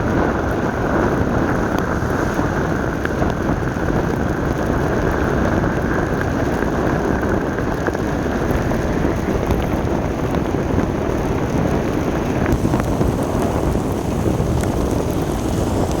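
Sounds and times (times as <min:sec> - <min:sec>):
vehicle rumble: 0:00.0 - 0:16.0
wind: 0:00.0 - 0:16.0
rain hissing: 0:00.1 - 0:05.3, 0:12.4 - 0:16.0.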